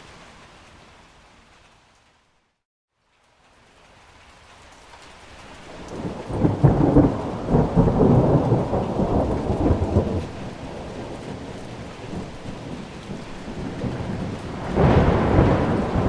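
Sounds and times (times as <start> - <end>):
steady rain: 0.0 - 16.0
thunder rolling: 6.0 - 16.0.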